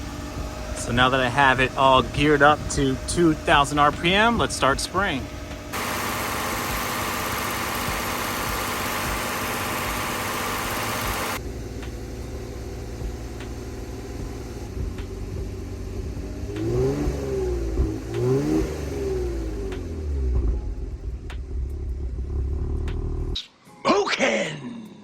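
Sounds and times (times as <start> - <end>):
car engine running: 0.0 - 23.4
aerosol spray hissing: 5.8 - 11.4.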